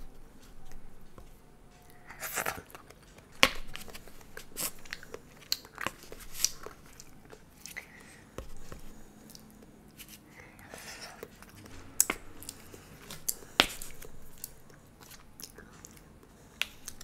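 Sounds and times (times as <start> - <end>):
crunching and chewing: 0.4 - 17.0.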